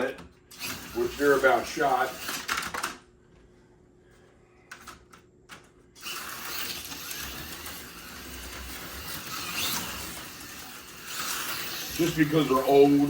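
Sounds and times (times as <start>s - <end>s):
slot car motor whirring: 0.0s - 2.9s, 6.0s - 13.0s.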